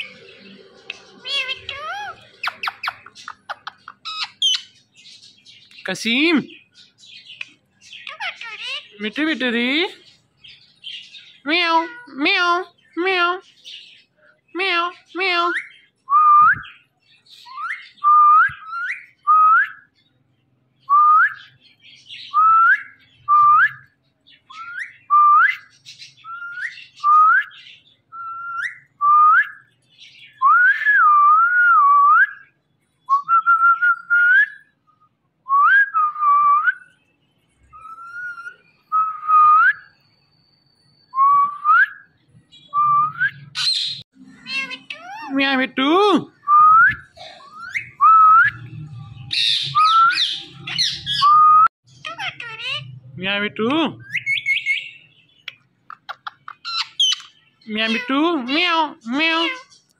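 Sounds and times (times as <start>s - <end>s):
parakeet whistling: 1.2s - 4.8s, 46.5s - 52.9s, 54.0s - 59.7s.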